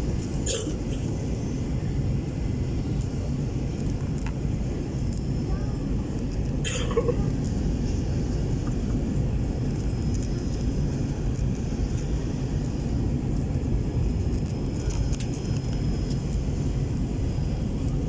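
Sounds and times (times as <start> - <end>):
faint high whine: 0.0 - 18.0
jet engines rumbling: 0.0 - 18.0.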